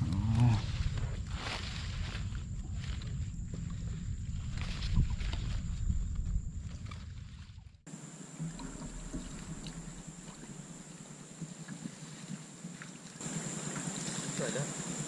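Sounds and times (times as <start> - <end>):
water sloshing and splashing: 4.4 - 15.0
faint steady hiss: 7.9 - 15.0.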